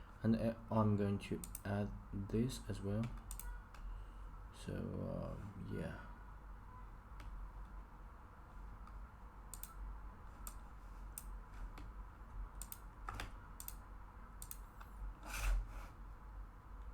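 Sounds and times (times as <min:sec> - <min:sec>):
low steady hum: 0:00.0 - 0:16.9
keyboard and mouse clicking: 0:01.4 - 0:01.7, 0:03.0 - 0:03.8, 0:08.8 - 0:09.8, 0:10.4 - 0:10.6, 0:12.6 - 0:13.8, 0:14.4 - 0:14.9.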